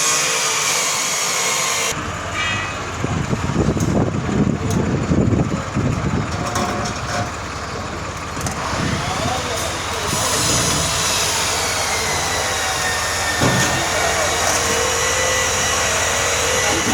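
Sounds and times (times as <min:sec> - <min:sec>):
machinery rumbling: 0:01.4 - 0:16.9.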